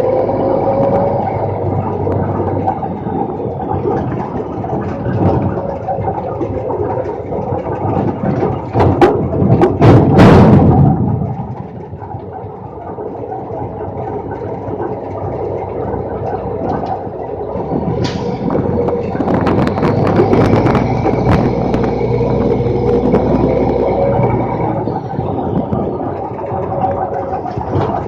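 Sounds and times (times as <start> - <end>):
diesel engine running: 0.0 - 28.0
metal clanks and rattles: 0.0 - 28.0
hydraulic whine: 12.9 - 28.0.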